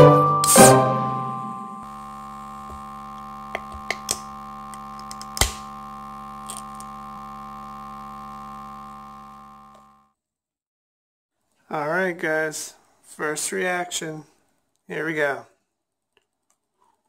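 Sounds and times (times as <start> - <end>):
electronic drone: 1.8 - 10.1
sharp clicks: 2.4 - 7.7.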